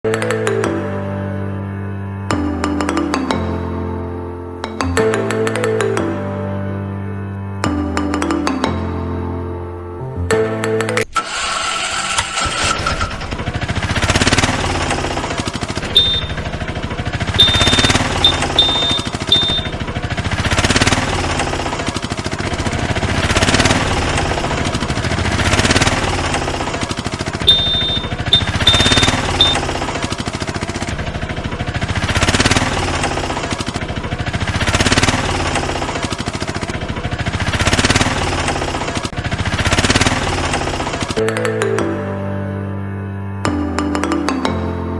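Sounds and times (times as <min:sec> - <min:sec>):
diesel engine chugging: 0:11.2 - 0:41.8
short high beeps: 0:16.0 - 0:16.4, 0:17.4 - 0:19.8, 0:27.5 - 0:29.6.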